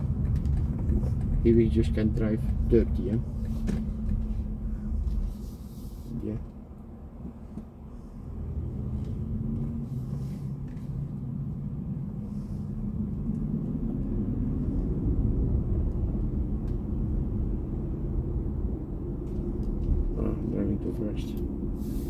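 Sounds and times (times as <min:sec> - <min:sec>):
road and tyre rumble: 0:00.0 - 0:22.0.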